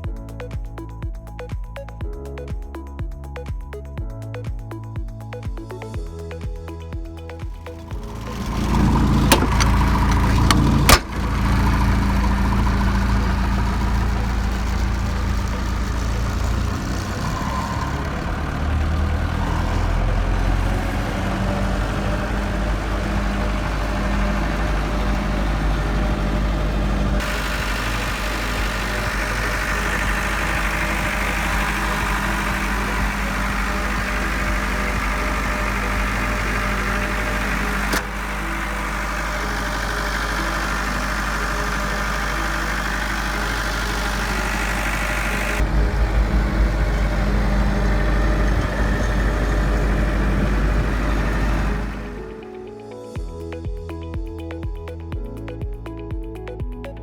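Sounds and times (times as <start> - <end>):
diesel generator humming: 5.8 - 54.6
sharp click: 9.3 - 11.2.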